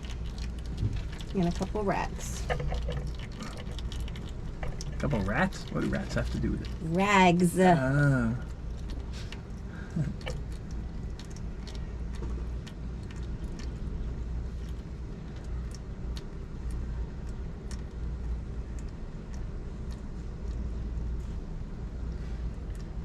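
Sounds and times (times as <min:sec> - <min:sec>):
oil dripping into pan: 0:00.0 - 0:06.8
low background rumble: 0:00.0 - 0:23.0.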